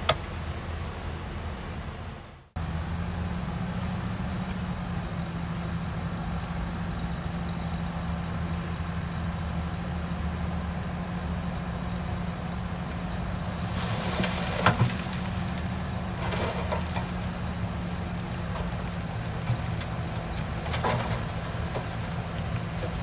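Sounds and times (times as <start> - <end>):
heavy diesel engine running: 0.0 - 23.0
brief hiss: 13.7 - 15.0.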